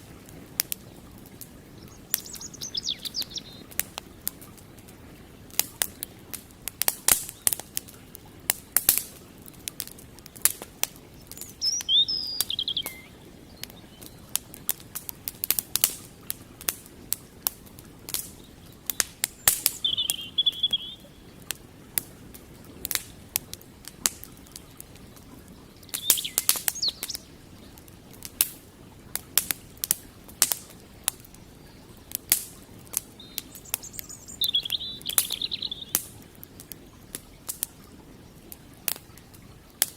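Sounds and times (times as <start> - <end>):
campfire crackling and popping: 0.0 - 39.9
low steady background rush: 0.0 - 39.9
bird calls: 1.7 - 4.2, 11.0 - 14.4, 18.3 - 21.4, 25.3 - 27.4, 33.1 - 36.2.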